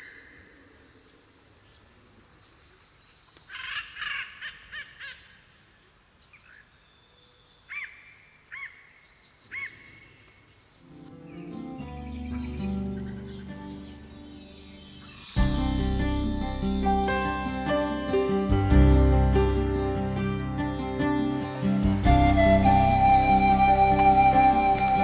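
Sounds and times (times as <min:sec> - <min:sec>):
music: 0:10.9 - 0:25.0.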